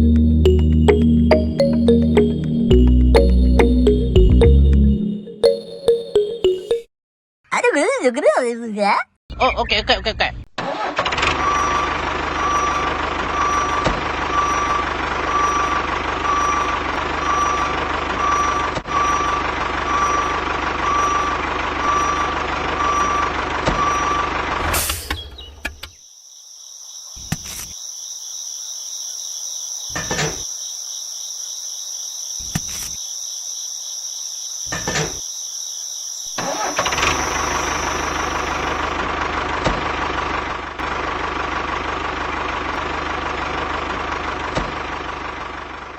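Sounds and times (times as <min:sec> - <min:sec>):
miniature tractor running: 0:36.4 - 0:45.8.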